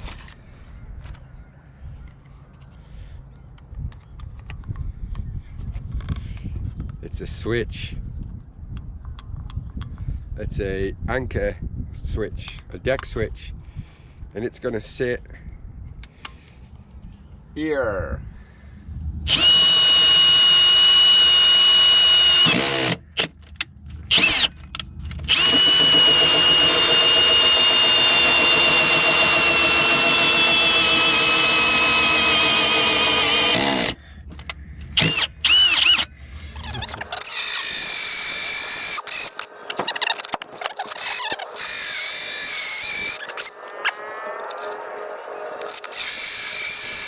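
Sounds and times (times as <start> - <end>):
power drill boring through wood: 19.3 - 23.3, 24.1 - 24.5, 25.2 - 34.0, 35.0 - 47.0.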